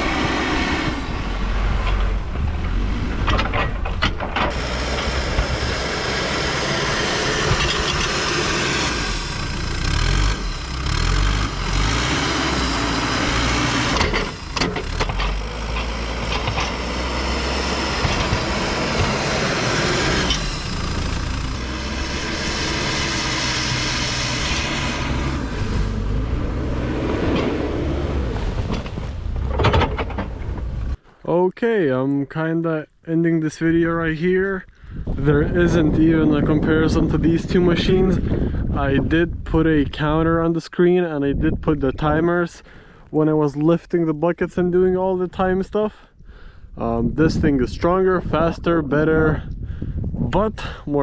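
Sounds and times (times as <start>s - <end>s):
diesel engine working hard: 0.0s - 31.0s.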